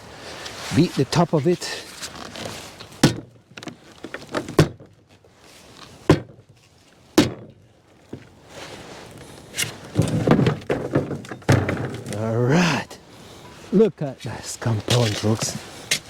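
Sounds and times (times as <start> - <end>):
shovel thunking on compost: 3.0 - 3.4, 4.4 - 4.9, 6.0 - 7.6, 9.5 - 12.2.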